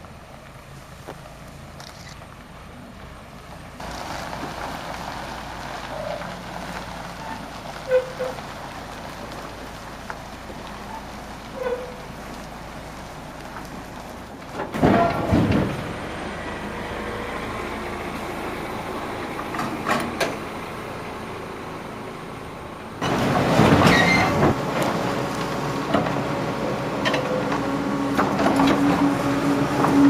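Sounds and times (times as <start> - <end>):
heavy vehicle running: 0.0 - 30.0
metallic clanking and rattling: 14.6 - 15.8.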